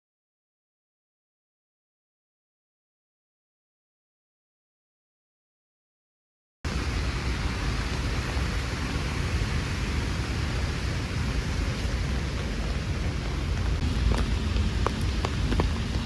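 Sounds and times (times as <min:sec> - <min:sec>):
rain rushing: 0:06.7 - 0:16.0.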